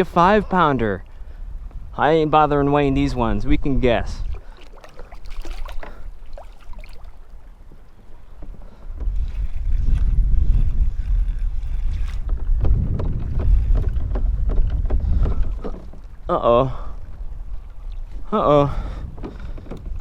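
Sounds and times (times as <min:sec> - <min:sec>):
wind buffeting microphone: 0:00.0 - 0:20.0
small knocks and splashes: 0:04.2 - 0:07.4.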